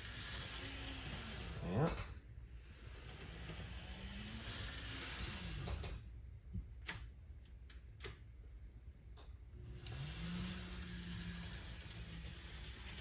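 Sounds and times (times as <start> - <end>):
model locomotive motor whine: 0.0 - 2.0, 2.6 - 6.1, 9.6 - 13.0.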